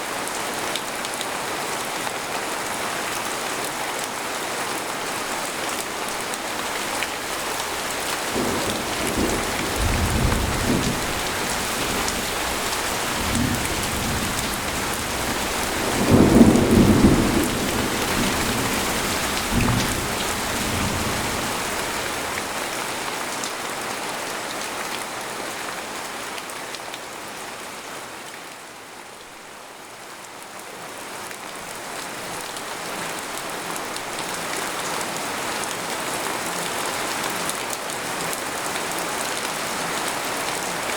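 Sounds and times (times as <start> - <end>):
rain falling on a tent: 0.0 - 40.9
thunder rumbling: 7.5 - 22.6.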